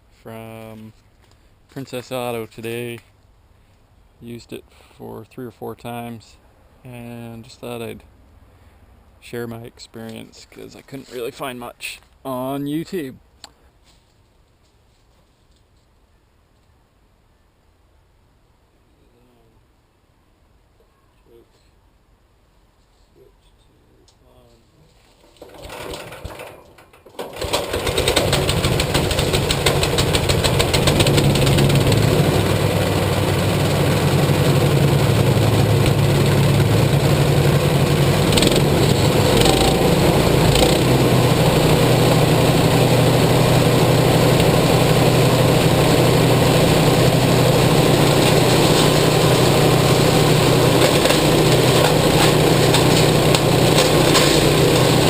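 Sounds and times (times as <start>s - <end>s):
chipper shredder engine running: 25.4s - 26.4s, 27.2s - 55.0s.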